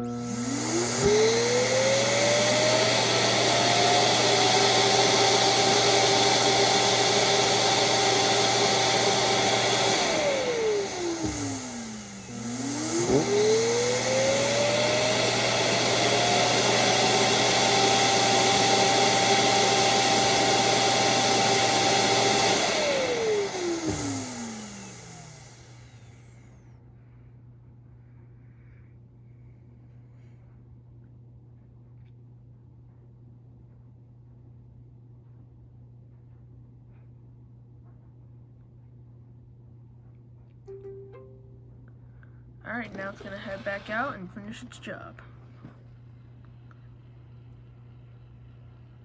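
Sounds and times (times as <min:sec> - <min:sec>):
suction motor whine: 0:00.0 - 0:26.6, 0:42.8 - 0:44.3.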